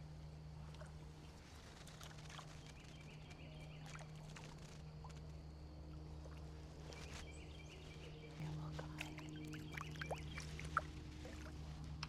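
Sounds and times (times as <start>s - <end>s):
steady low hum: 0.0s - 12.0s
faint bird chirps: 6.9s - 11.4s.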